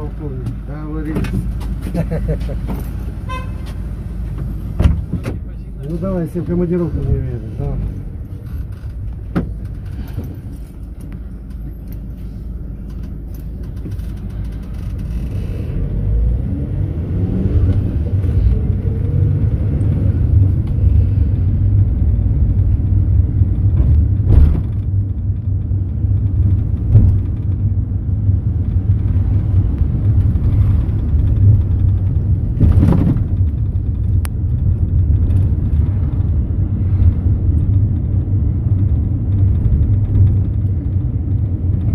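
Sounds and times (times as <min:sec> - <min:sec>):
minibus engine: 0:00.0 - 0:41.9
road rumble: 0:00.0 - 0:41.9
knocks and rattles from bumps: 0:03.6 - 0:06.1, 0:08.4 - 0:11.8, 0:23.4 - 0:41.9.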